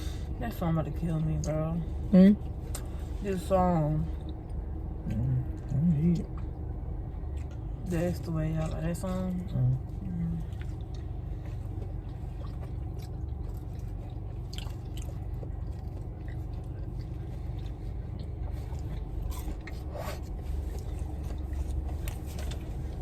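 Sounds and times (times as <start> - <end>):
steady low hum: 0.0 - 23.0
person chewing food: 4.2 - 7.9, 9.8 - 23.0.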